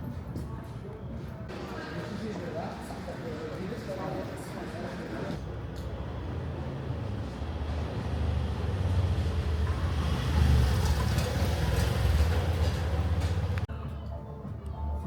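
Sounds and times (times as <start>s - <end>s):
vehicle rumble: 5.4s - 13.7s.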